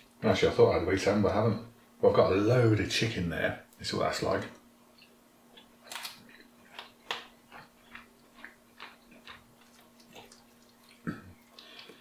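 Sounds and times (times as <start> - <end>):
faint steady hum: 0.0 - 12.0
man chewing: 4.9 - 12.0.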